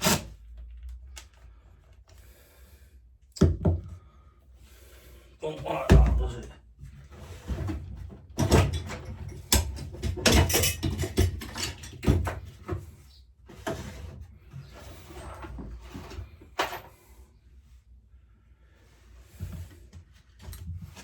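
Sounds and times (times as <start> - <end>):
clatter of hand tools and metal parts: 7.4 - 17.2.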